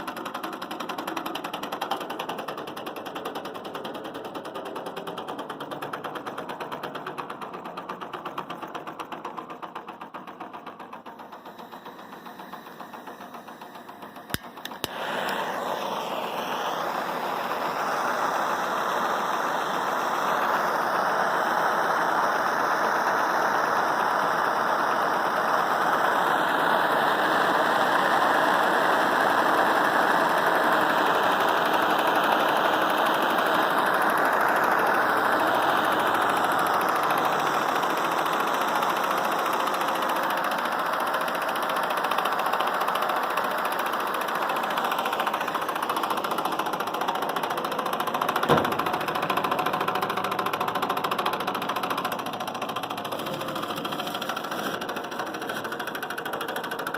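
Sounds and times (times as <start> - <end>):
stirling engine running: 0.0 - 56.9
sharp click: 14.3 - 15.5.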